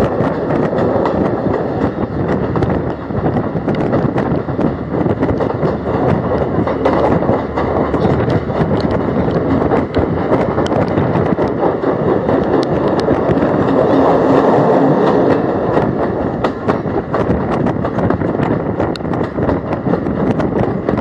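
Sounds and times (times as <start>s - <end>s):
sharp clicks and knocks of wheels: 0.0s - 21.0s
train wheels rumbling on rails: 0.0s - 21.0s.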